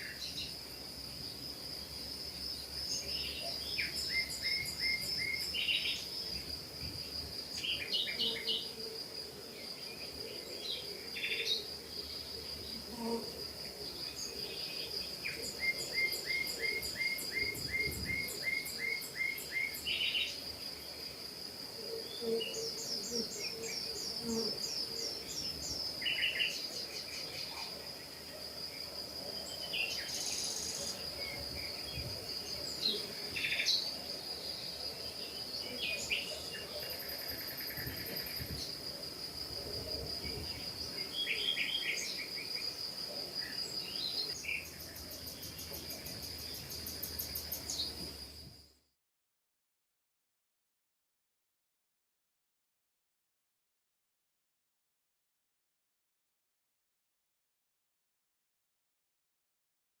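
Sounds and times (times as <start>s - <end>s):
high-pitched insect trill: 0.0s - 9.3s, 10.0s - 48.7s.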